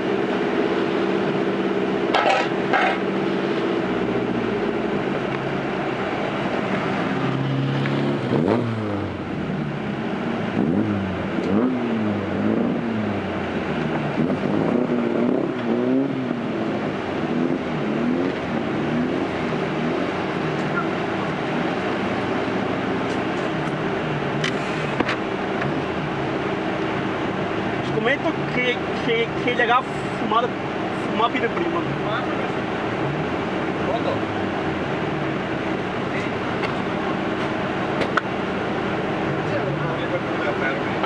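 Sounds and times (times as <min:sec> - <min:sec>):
diesel engine revving: 0:00.0 - 0:41.0.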